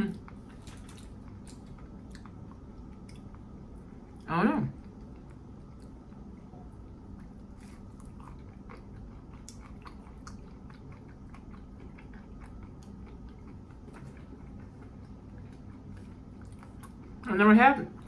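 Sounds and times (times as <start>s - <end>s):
low room hum: 0.0s - 18.0s
person chewing crunchy food: 0.2s - 4.2s, 4.8s - 17.3s.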